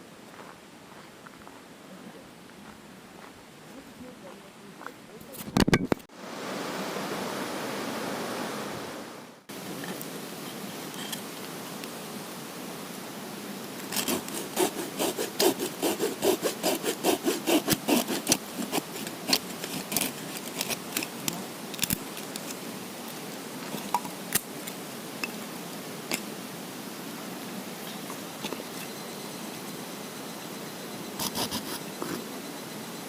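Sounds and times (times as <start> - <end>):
hand saw cutting wood: 13.8 - 21.3, 31.2 - 31.8.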